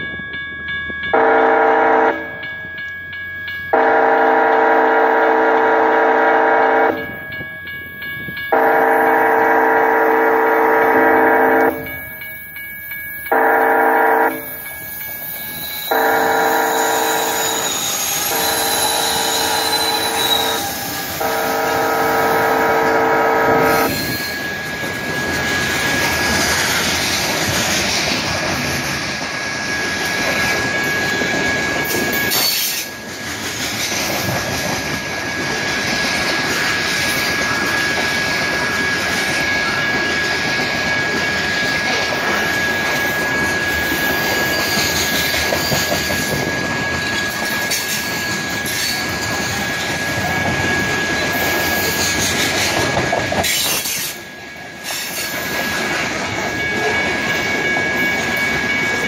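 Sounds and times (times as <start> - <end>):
freight train wheels on rails: 0.0 - 59.0
high wheel squeal: 14.4 - 28.1, 29.7 - 33.0, 36.3 - 54.2.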